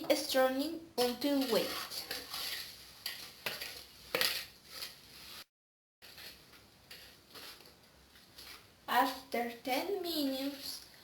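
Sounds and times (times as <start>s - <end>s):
whisk scraping in steel bowl: 1.0s - 9.4s.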